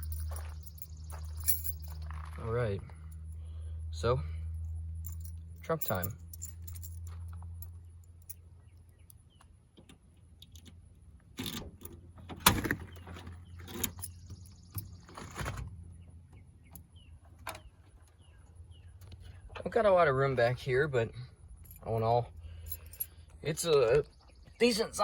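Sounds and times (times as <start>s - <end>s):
keys jangling: 0.0s - 2.3s, 4.6s - 8.4s, 13.5s - 15.0s, 21.5s - 23.2s
birds chirping faintly: 0.0s - 3.8s, 12.8s - 25.0s
low hum: 0.0s - 9.0s.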